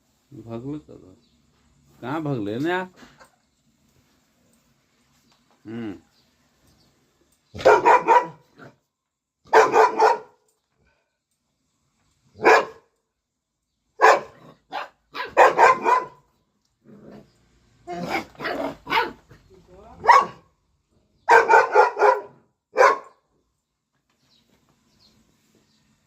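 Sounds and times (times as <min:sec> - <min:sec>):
dog barking: 0:07.6 - 0:08.8, 0:09.4 - 0:10.4, 0:12.4 - 0:12.9, 0:14.0 - 0:16.3, 0:17.9 - 0:19.3, 0:20.0 - 0:20.5, 0:21.2 - 0:23.2.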